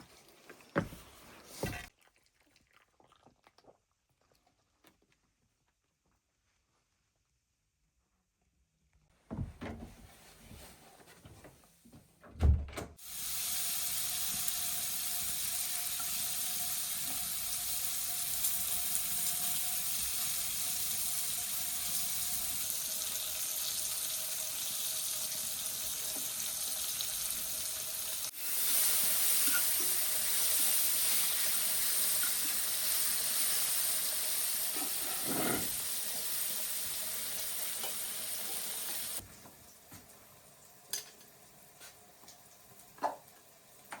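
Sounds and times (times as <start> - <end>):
water running from a tap: 13.0 - 39.8.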